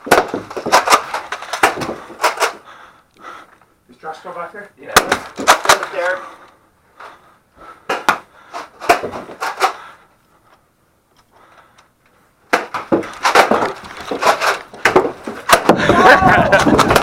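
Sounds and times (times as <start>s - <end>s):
clattering knocks and bumps: 0.0s - 2.6s, 12.5s - 17.0s.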